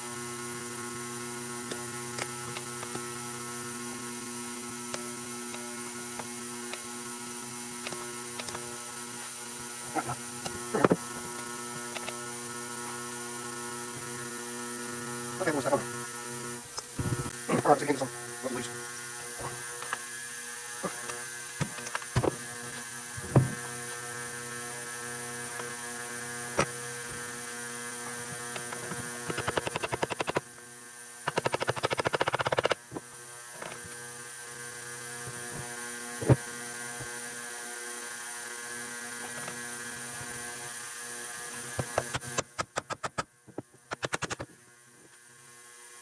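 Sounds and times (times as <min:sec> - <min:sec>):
electrical hum: 0:00.0 - 0:45.2
rapid even clicking: 0:29.2 - 0:30.5, 0:31.2 - 0:32.9, 0:41.8 - 0:44.5.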